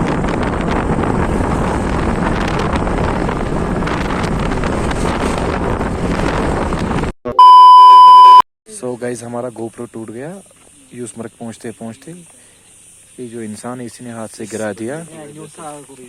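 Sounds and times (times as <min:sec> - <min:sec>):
wind buffeting the microphone: 0:00.0 - 0:07.1
steady electronic beep: 0:07.3 - 0:08.4.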